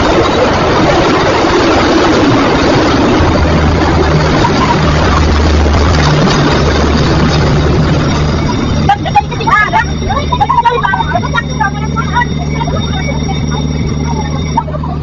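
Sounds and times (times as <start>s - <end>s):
low engine drone: 0.0s - 15.0s
vehicle and road noise: 0.0s - 15.0s.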